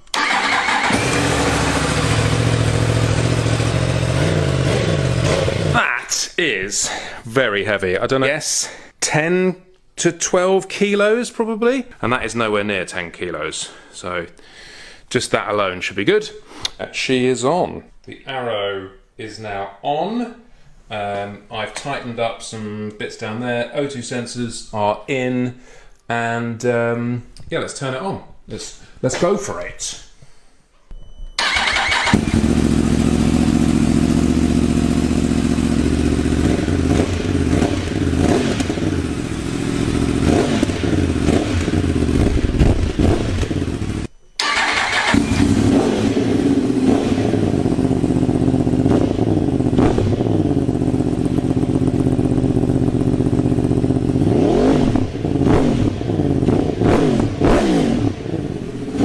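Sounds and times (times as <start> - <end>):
motorcycle engine revving: 0.2 - 5.8, 31.4 - 59.0.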